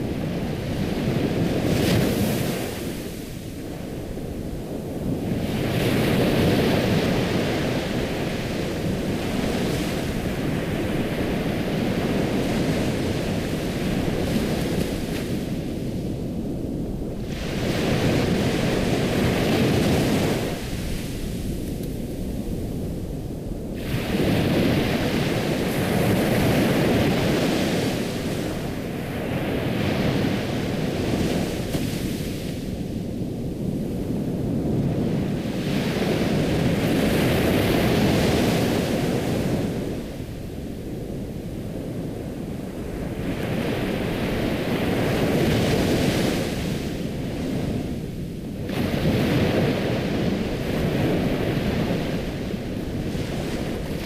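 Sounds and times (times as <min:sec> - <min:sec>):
ocean waves breaking: 0:16.8 - 0:40.5, 0:41.3 - 0:54.0.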